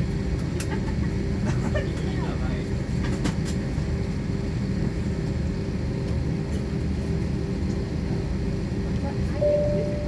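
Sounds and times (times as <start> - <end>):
airliner cabin engine rumble: 0.0 - 10.0
faint steady hum: 9.3 - 10.0.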